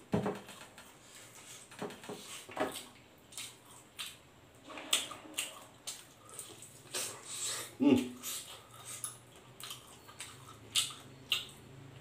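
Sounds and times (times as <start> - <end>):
person chewing and lip-smacking: 2.7 - 4.2, 4.9 - 11.8.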